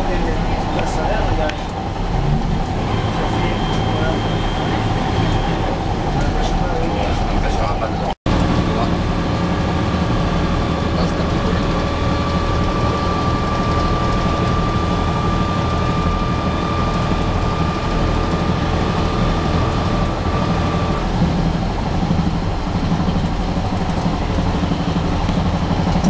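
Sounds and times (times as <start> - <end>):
rolling rail noise: 0.0 - 26.0
train engine drone: 0.0 - 26.0
thin steady whine: 2.6 - 7.6.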